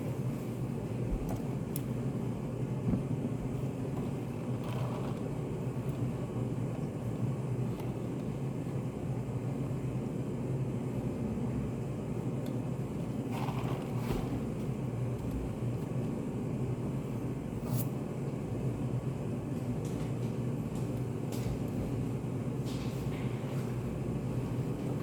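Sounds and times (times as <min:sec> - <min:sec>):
low room hum and rumble: 0:00.0 - 0:25.0.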